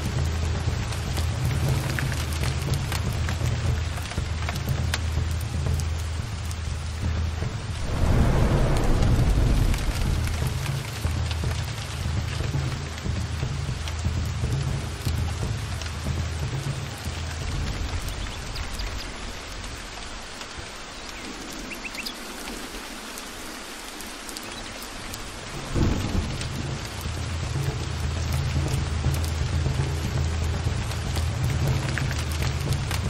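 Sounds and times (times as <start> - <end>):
heavy rain: 0.0 - 33.0
thunder rumbling: 7.5 - 12.5, 25.3 - 27.5
thunderclap: 7.6 - 12.4, 25.5 - 27.2.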